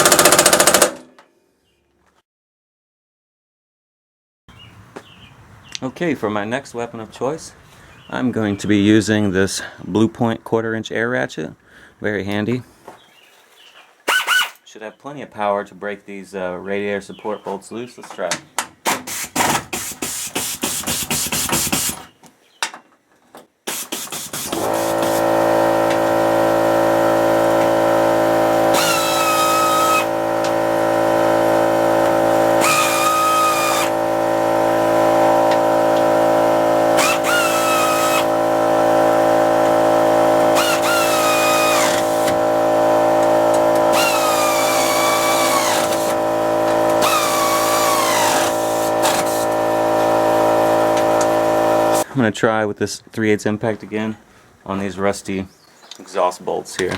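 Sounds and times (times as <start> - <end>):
air compressor humming: 0.0 - 1.0, 24.3 - 52.1
air ratchet clattering: 0.0 - 1.0, 36.8 - 52.0.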